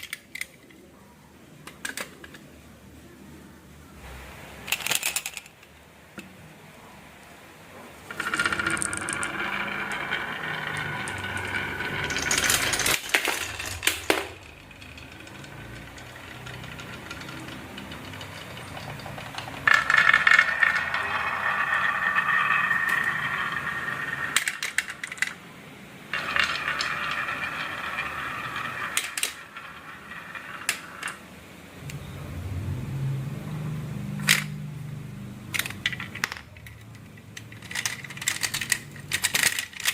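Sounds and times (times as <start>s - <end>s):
marbles rolling down wooden run: 8.1s - 25.4s, 26.1s - 31.4s
marbles clicking against track: 8.1s - 25.5s, 26.1s - 31.3s, 35.6s - 39.9s.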